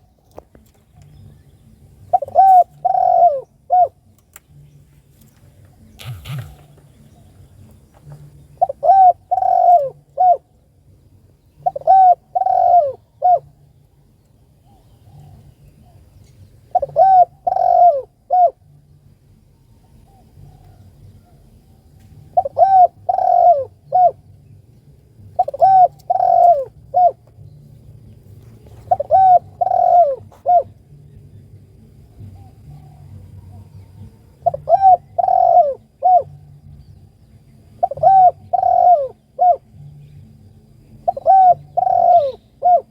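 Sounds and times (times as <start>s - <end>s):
dove cooing: 2.0s - 4.1s, 5.8s - 7.3s, 8.1s - 10.6s, 11.6s - 13.7s, 14.6s - 18.8s, 22.2s - 24.3s, 25.2s - 27.4s, 28.6s - 31.0s, 32.1s - 36.6s, 37.8s - 39.8s, 40.9s - 42.9s.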